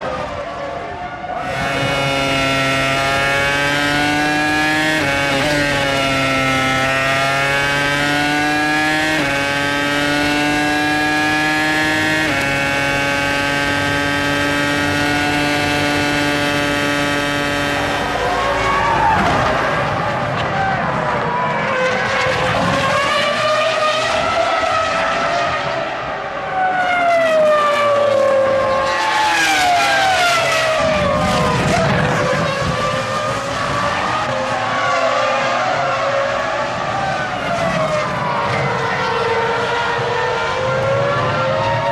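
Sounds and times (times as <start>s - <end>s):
racing car engine at full throttle: 0.0s - 41.9s.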